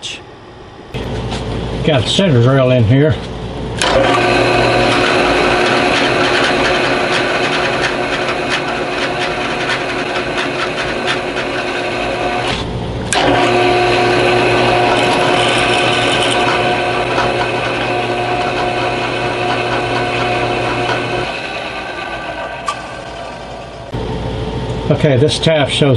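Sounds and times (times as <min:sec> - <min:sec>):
drill motor hum: 0:03.7 - 0:24.9
drill cutting ticks: 0:03.8 - 0:24.0.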